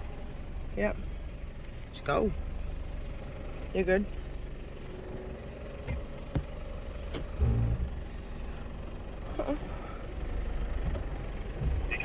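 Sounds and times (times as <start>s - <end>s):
vehicle engine running: 0.0s - 12.0s
sharp knocks: 5.9s - 6.7s.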